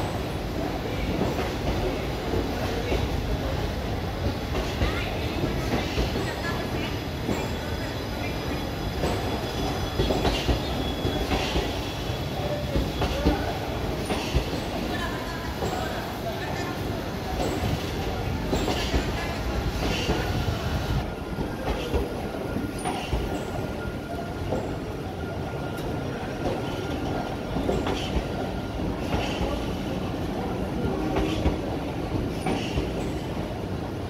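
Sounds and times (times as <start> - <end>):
train rumbling: 0.0 - 34.0
faint wheel squeal: 7.3 - 13.2.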